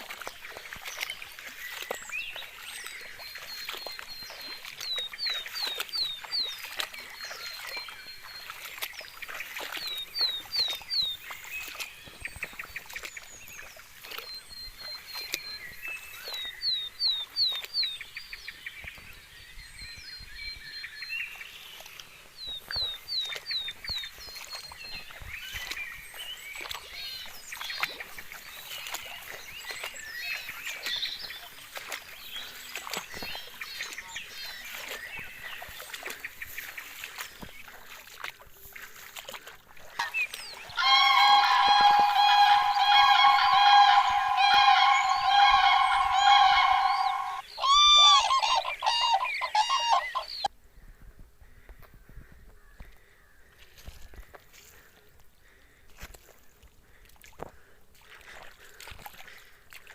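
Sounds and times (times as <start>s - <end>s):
bird chirps and calls: 1.7s - 18.5s, 40.0s - 50.5s
songbird whistling phrase: 40.8s - 50.5s.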